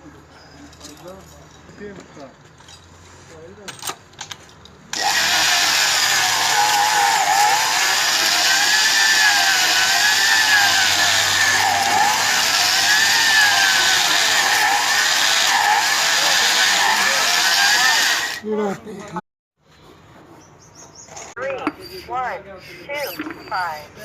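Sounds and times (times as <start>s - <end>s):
electric drill running under load: 4.9s - 18.4s.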